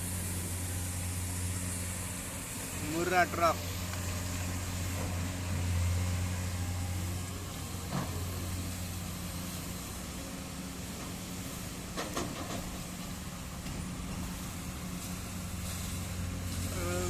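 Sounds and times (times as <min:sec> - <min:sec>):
diesel engine humming: 0:00.0 - 0:17.0.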